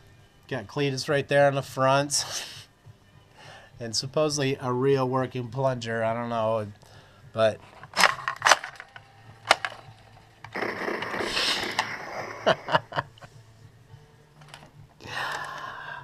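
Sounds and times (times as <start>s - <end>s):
plastic clicks and rattles: 7.7s - 10.6s, 14.4s - 14.8s.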